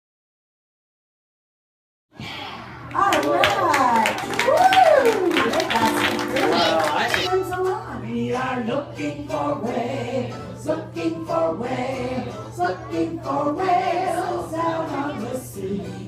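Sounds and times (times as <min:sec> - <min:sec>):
musical backing: 0:04.2 - 0:16.0
group singing in chorus: 0:07.9 - 0:16.0.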